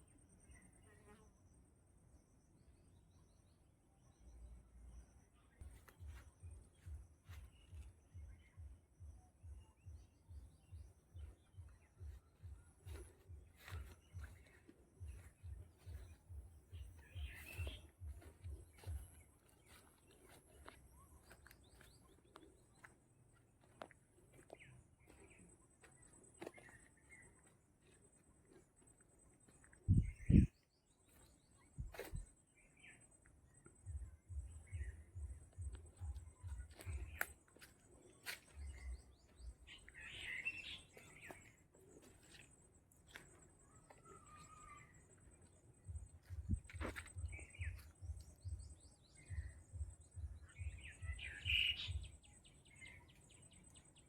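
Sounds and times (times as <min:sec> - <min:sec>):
faint bird chirps: 0:00.0 - 0:54.0
low pulsing rumble: 0:33.8 - 0:37.2, 0:45.7 - 0:52.2.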